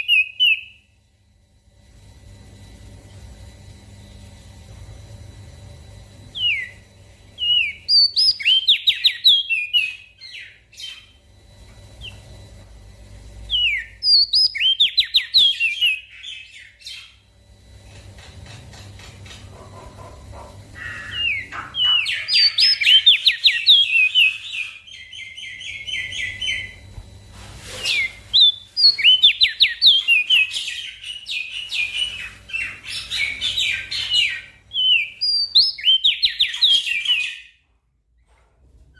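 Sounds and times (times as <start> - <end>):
bird chirping trills: 0.0 - 1.0, 5.9 - 12.5, 13.3 - 17.5, 19.5 - 26.9, 27.8 - 37.6.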